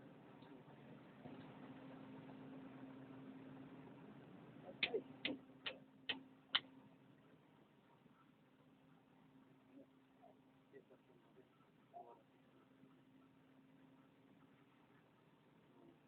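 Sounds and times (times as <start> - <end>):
faint steady hum: 0.0 - 16.0
sharp taps: 4.8 - 6.7.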